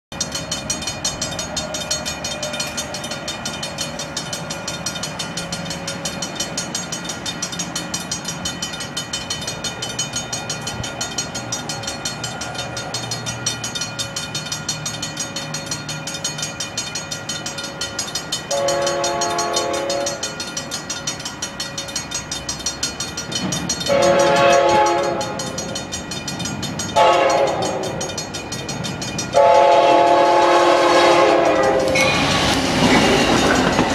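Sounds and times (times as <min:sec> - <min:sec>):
crossing bell ringing rapidly: 0:00.1 - 0:33.9
train chime horn blasts: 0:18.5 - 0:20.7, 0:23.9 - 0:25.8, 0:26.9 - 0:28.1, 0:29.3 - 0:32.2.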